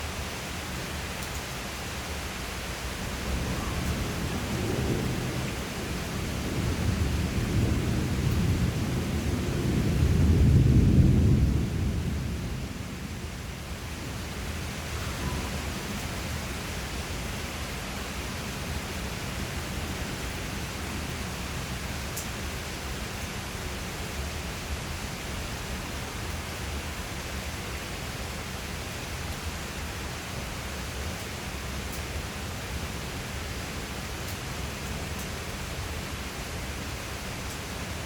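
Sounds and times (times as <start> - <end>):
steady rain: 0.0 - 38.0
thunder rumbling: 3.0 - 14.1.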